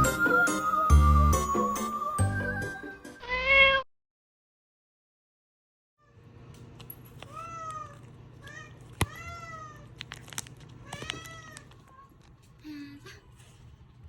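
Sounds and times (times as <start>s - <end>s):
cats meowing: 3.2s - 3.8s, 7.2s - 10.0s, 10.8s - 12.4s.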